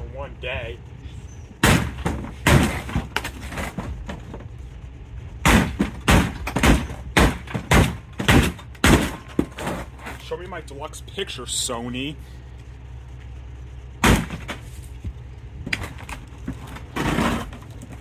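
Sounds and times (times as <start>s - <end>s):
hard knocks and bangs: 1.6s - 4.5s, 5.4s - 9.9s, 14.0s - 14.7s.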